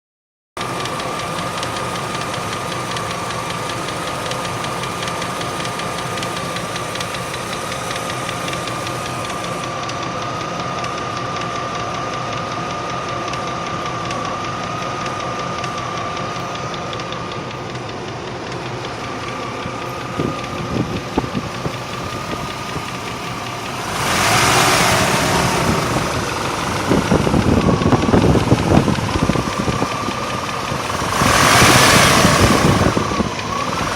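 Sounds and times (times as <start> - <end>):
car engine idling: 0.6 - 33.9
rapid engine ticking: 0.6 - 33.9
irregular engine knocks: 15.0 - 33.9.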